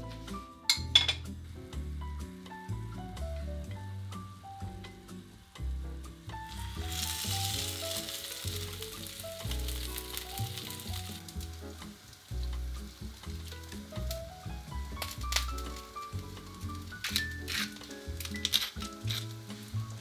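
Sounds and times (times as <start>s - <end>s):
food sizzling in hot oil: 3.9s - 20.0s.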